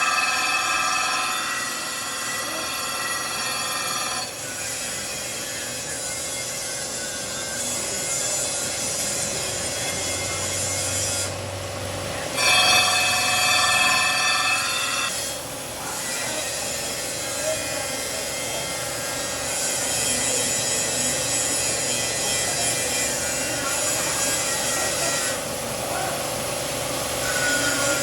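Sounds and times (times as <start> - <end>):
grinding noise: 0.0 - 6.5, 12.4 - 17.6
machinery whine: 0.0 - 28.0.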